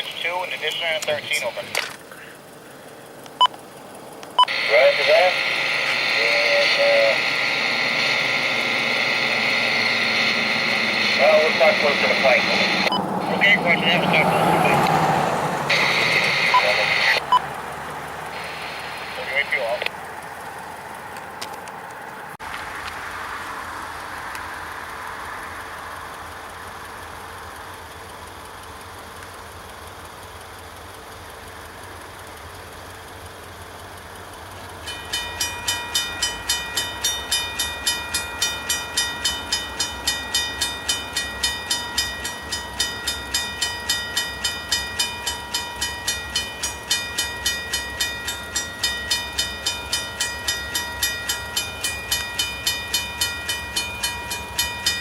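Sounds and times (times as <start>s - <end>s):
crossing bell ringing: 3.4s - 21.0s, 34.4s - 55.0s.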